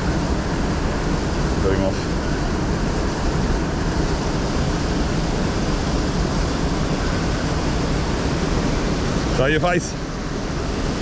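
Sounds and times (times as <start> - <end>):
river water rushing: 3.9 - 11.0.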